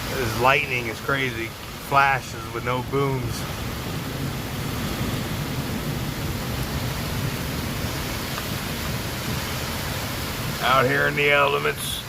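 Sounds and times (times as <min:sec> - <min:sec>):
rain: 0:00.0 - 0:12.0
wind on microphone: 0:02.9 - 0:11.1.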